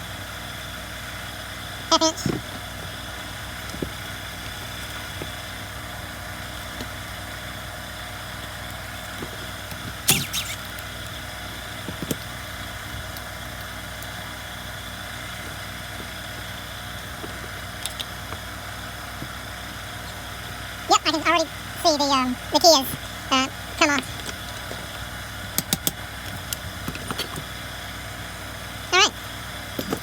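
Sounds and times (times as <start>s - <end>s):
steady workshop hum: 0.0s - 10.8s.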